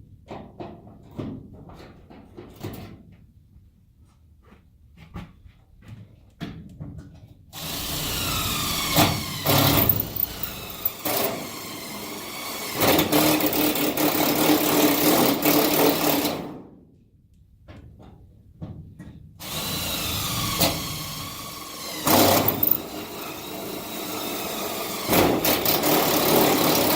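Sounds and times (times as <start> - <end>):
power drill boring into metal: 7.6 - 16.2, 19.5 - 26.9.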